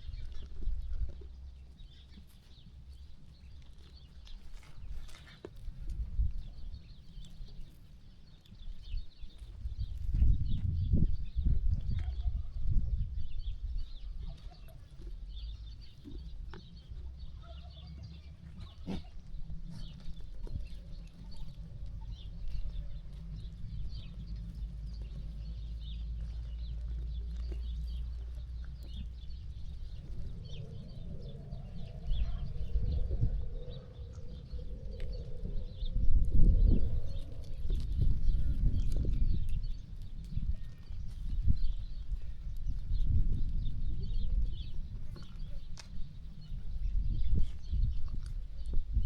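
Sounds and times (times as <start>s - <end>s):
steady low rumble: 15.3s - 49.0s.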